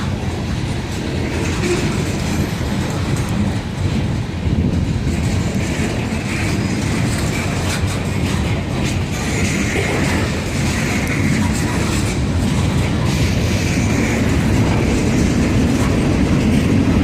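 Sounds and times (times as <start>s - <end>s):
train wheels rumbling on rail: 0.0s - 17.0s
wheels clicking over rail joints: 0.0s - 17.0s.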